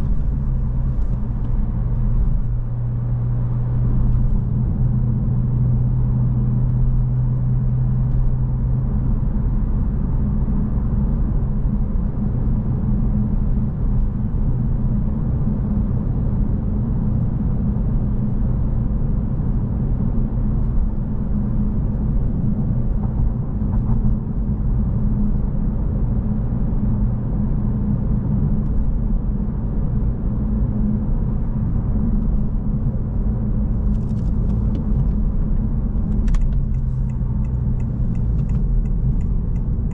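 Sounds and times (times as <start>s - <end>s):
tyre and road noise: 0.0s - 9.1s, 28.3s - 39.9s
car engine droning: 0.0s - 39.9s.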